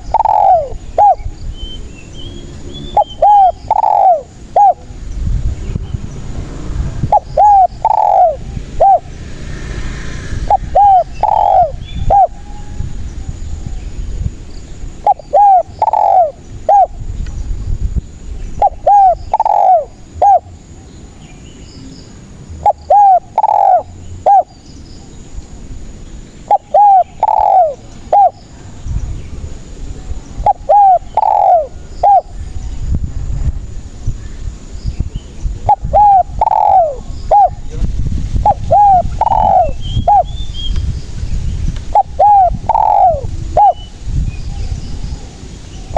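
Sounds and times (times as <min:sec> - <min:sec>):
dove cooing: 0:00.0 - 0:01.4, 0:02.8 - 0:04.9, 0:07.0 - 0:09.2, 0:10.4 - 0:12.8, 0:14.9 - 0:17.0, 0:18.5 - 0:20.8, 0:22.5 - 0:24.6, 0:26.4 - 0:28.7, 0:30.4 - 0:32.4, 0:35.6 - 0:40.4, 0:41.8 - 0:45.5.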